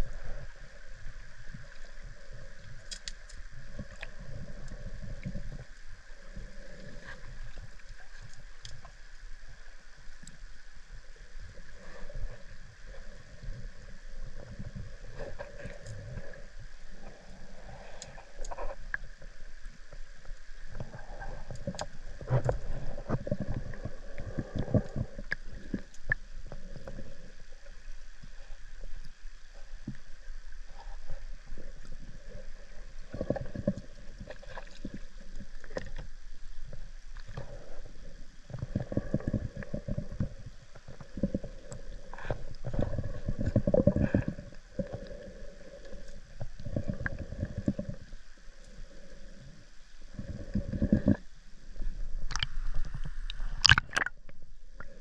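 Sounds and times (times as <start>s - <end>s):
clicks of moving water: 1.5s - 5.8s, 6.4s - 9.0s, 17.7s - 19.3s, 20.3s - 27.2s, 52.2s - 55.0s.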